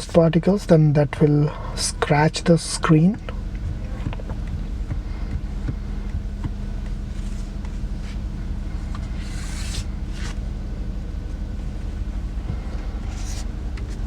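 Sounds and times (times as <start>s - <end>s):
diesel engine idling: 0.0s - 14.0s
wipe rustling on touchscreen: 6.8s - 10.5s, 12.6s - 14.0s.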